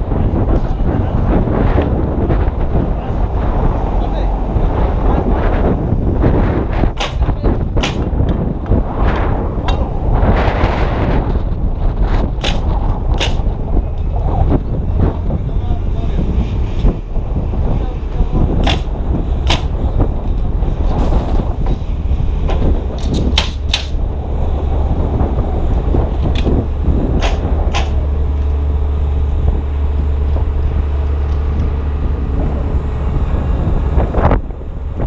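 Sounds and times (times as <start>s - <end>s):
wind buffeting microphone: 0.0s - 35.0s
sharp knocks from truss: 7.0s - 8.2s, 27.2s - 28.0s.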